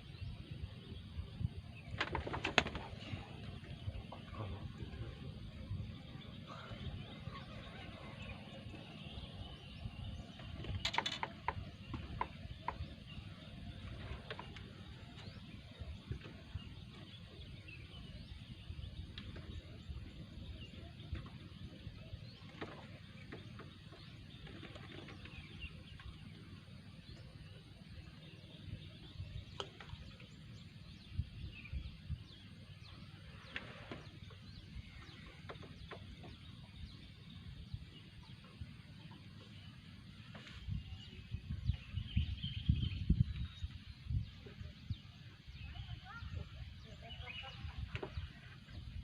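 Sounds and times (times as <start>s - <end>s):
steady low rumble: 2.8s - 10.6s.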